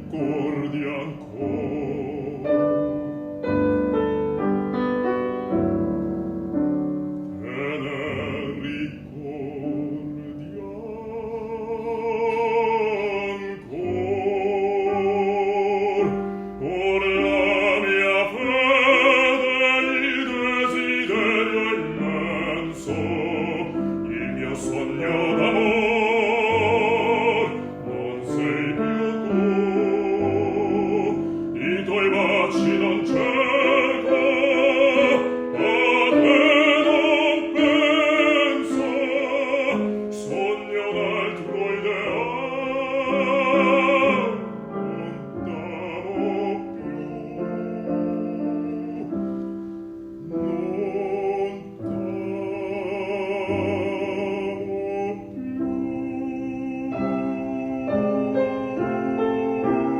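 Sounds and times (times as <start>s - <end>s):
operatic bass voice singing: 0.0s - 3.0s, 7.4s - 49.1s
piano accompaniment: 0.0s - 59.9s.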